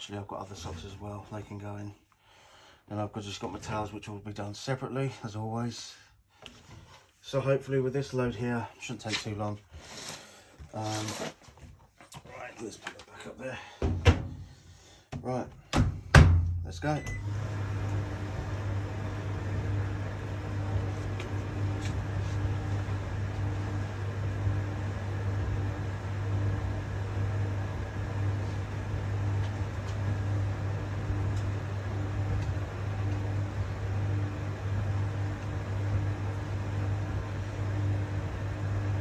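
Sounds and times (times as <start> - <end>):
tumble dryer humming: 17.1 - 39.0.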